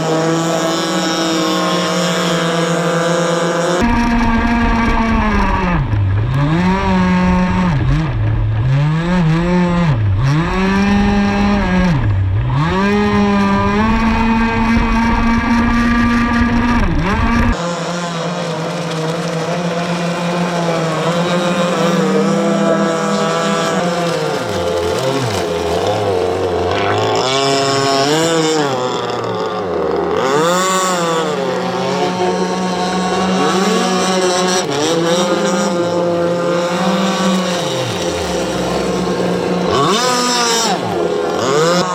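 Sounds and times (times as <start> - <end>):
boat two-stroke engine revving: 0.0 - 41.9
low rumble: 3.8 - 17.6.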